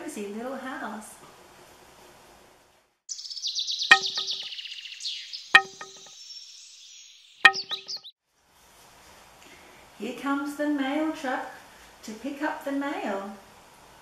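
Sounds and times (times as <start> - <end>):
birds chirping and trilling: 3.1 - 8.1
sharp ringing knocks: 3.9 - 4.5, 5.6 - 6.1, 7.5 - 8.0.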